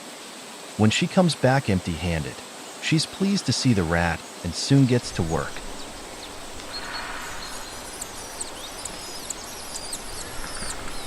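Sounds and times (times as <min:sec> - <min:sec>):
steady background hiss: 0:00.0 - 0:11.0
high-pitched bird chirps: 0:06.7 - 0:11.0.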